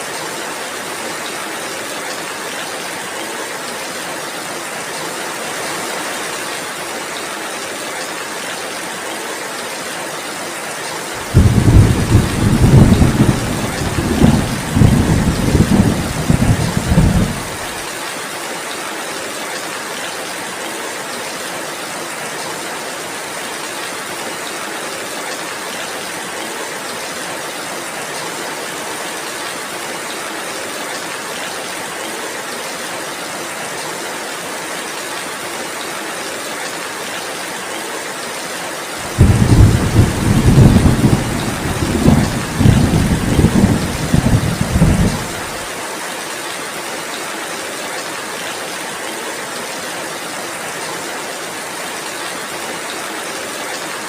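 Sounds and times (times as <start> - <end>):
heavy rain: 0.0 - 54.0
thunder rumbling: 11.2 - 17.8, 39.0 - 45.7.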